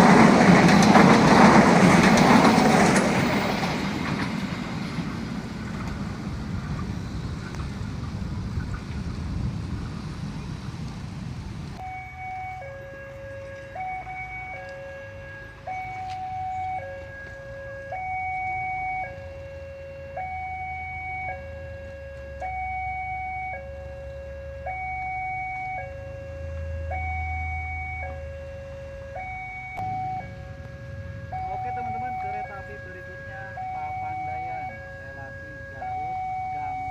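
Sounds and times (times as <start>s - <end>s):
train rumbling clatter: 0.0s - 11.8s
low vehicle engine hum: 0.0s - 36.9s
two-tone crossing warning alarm: 11.8s - 36.9s.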